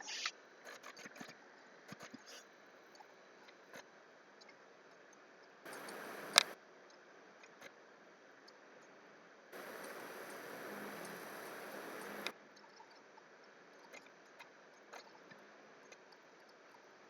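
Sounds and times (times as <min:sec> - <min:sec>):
computer clicks: 0:05.7 - 0:06.6
hiss: 0:05.7 - 0:06.6, 0:09.6 - 0:12.3
sharp click: 0:05.7 - 0:06.6.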